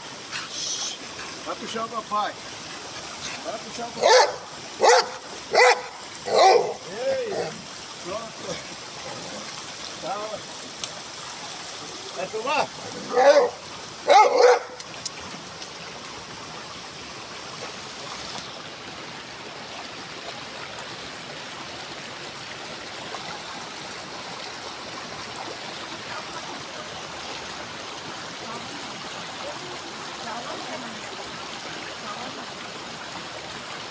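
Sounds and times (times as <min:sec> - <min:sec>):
waterfall and stream rushing: 0:00.0 - 0:33.9
dog barking: 0:04.0 - 0:07.5, 0:13.0 - 0:14.8.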